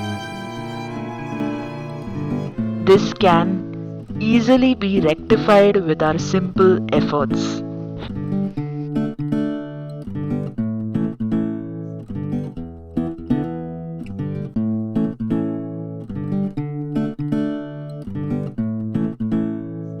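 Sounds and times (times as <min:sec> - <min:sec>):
acoustic guitar strumming: 0:00.0 - 0:10.6.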